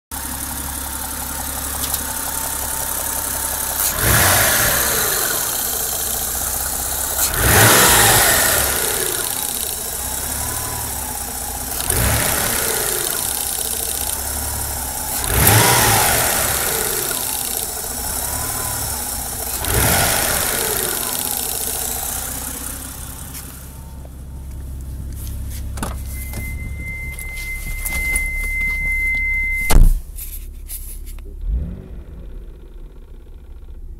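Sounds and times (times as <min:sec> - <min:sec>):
car engine revving: 0:02.5 - 0:29.8, 0:31.3 - 0:33.8
high-pitched beep: 0:26.0 - 0:29.9.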